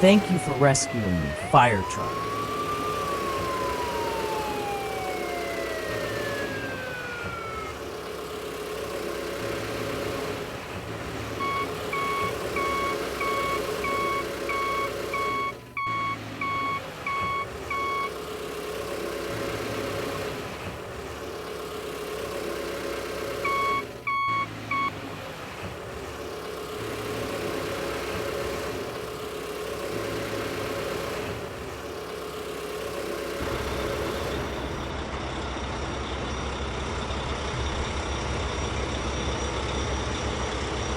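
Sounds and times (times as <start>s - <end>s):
reversing alarm beeping: 0.0s - 7.4s, 11.4s - 18.2s, 23.4s - 25.0s
siren wail: 0.0s - 8.0s, 11.4s - 18.2s
truck engine running: 0.0s - 40.9s.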